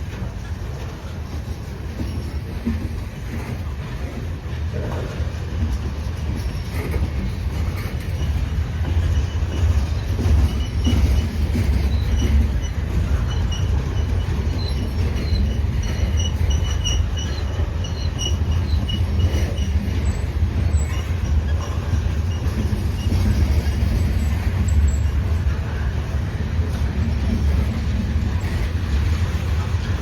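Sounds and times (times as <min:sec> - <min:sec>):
freight train wheels rumbling: 0:00.0 - 0:30.0
wheel squeals: 0:06.1 - 0:30.0.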